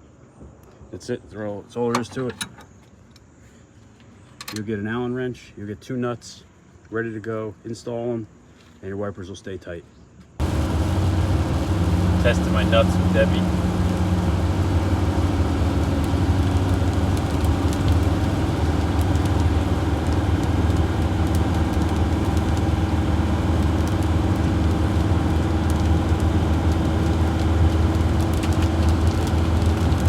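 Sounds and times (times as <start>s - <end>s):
van engine droning: 10.4s - 30.0s.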